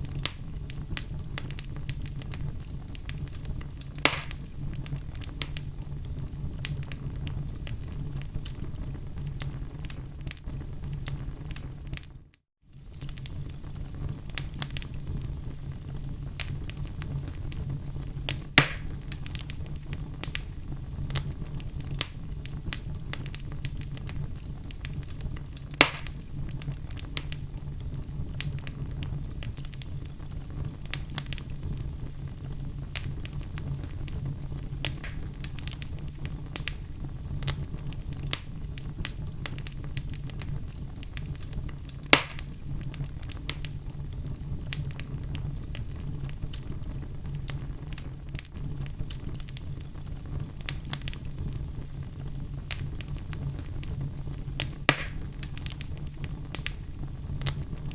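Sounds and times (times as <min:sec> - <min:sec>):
fire crackling: 0:00.0 - 0:57.9
fire rumbling: 0:00.0 - 0:57.9
loud fire pops: 0:00.0 - 0:57.9.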